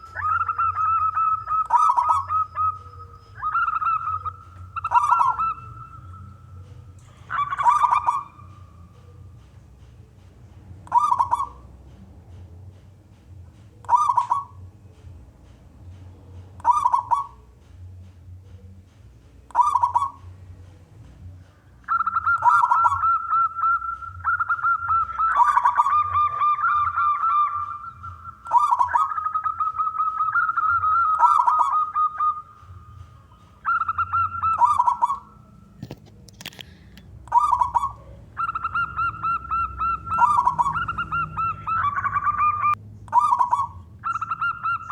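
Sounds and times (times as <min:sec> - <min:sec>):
higher-pitched bird call: 0:00.0 - 0:09.2, 0:10.8 - 0:11.6, 0:13.8 - 0:14.6, 0:16.6 - 0:17.5, 0:19.5 - 0:20.4, 0:21.8 - 0:35.8, 0:37.3 - 0:44.9
dove cooing: 0:00.0 - 0:10.2, 0:10.8 - 0:11.7, 0:13.8 - 0:14.7, 0:16.3 - 0:17.6, 0:19.5 - 0:20.4, 0:21.5 - 0:44.9.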